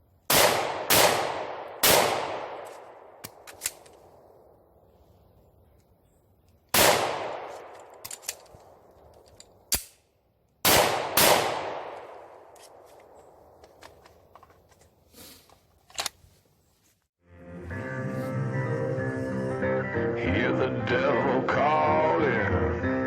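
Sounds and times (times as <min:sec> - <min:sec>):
handgun shots with echo: 0:00.3 - 0:03.8, 0:06.7 - 0:08.3, 0:10.7 - 0:13.2.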